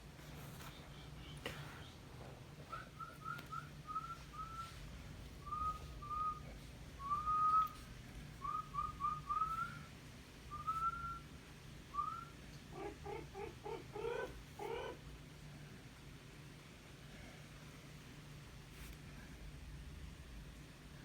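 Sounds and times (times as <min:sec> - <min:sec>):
low steady hum: 0:00.0 - 0:21.0
person whistling: 0:03.0 - 0:04.7, 0:07.0 - 0:07.8.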